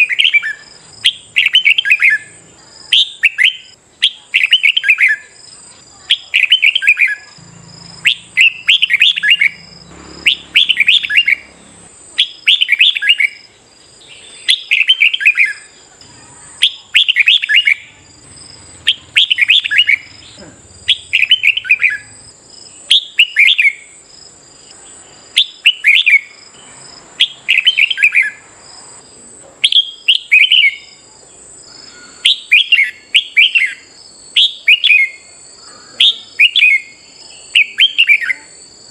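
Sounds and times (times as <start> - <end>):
bird singing whistled phrases: 0.0 - 5.4, 6.1 - 7.4, 8.0 - 11.6, 12.2 - 13.4, 14.1 - 18.0, 18.8 - 22.2, 22.8 - 24.0, 25.3 - 26.4, 27.2 - 28.4, 29.6 - 31.0, 31.7 - 38.6.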